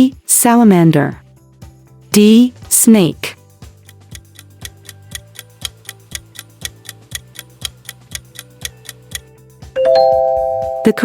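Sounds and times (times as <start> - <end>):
soft background music: 0.0 - 11.0
clock ticking: 3.8 - 9.3.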